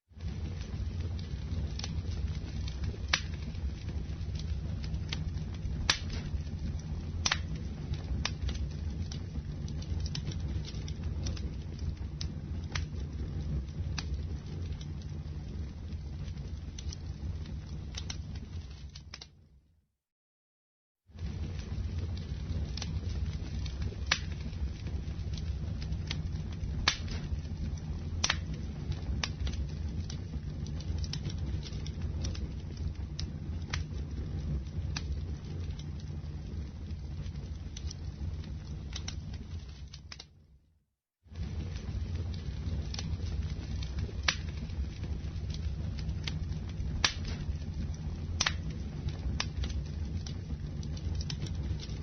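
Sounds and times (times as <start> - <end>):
campfire roaring: 0.0 - 19.5, 21.1 - 40.4, 41.1 - 52.0
wood popping and crackling: 0.1 - 19.4, 21.1 - 40.4, 41.3 - 52.0.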